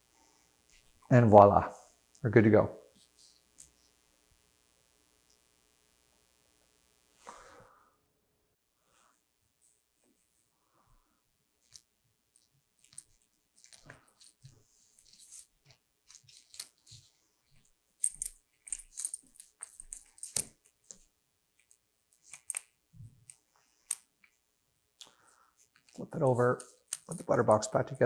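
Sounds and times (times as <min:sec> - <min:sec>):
plastic and metal parts clicking: 0:18.0 - 0:21.0, 0:22.2 - 0:24.0, 0:26.6 - 0:27.3
line rustling: 0:25.7 - 0:27.8.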